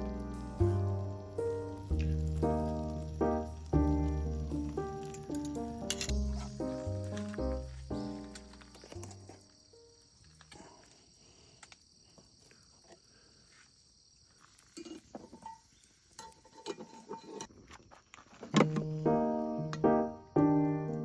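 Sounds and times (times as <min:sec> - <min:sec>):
steady high hiss: 0:00.0 - 0:08.8
piano music: 0:00.0 - 0:09.9, 0:18.6 - 0:21.0.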